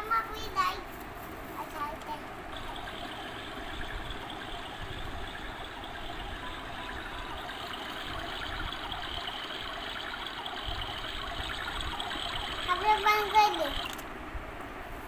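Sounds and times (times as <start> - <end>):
water trickling: 2.4 - 14.0
small motor whirring: 2.5 - 14.1.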